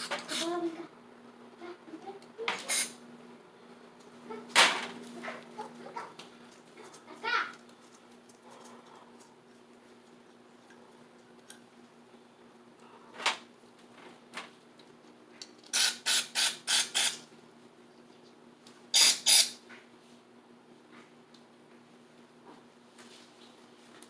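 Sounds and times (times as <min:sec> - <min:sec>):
aerosol spray hissing: 0:19.0 - 0:19.6.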